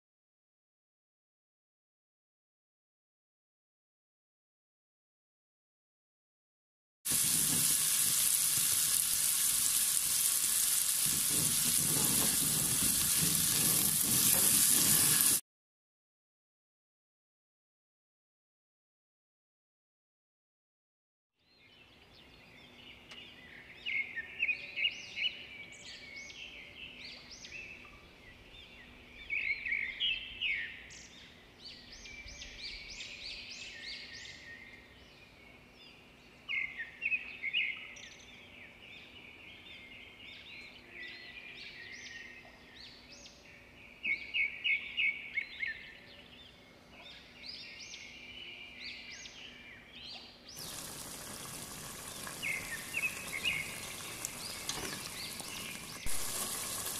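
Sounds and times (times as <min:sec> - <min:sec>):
loud steady hiss: 0:07.1 - 0:15.4, 0:50.6 - 0:56.9
songbird chirping: 0:21.4 - 0:56.6.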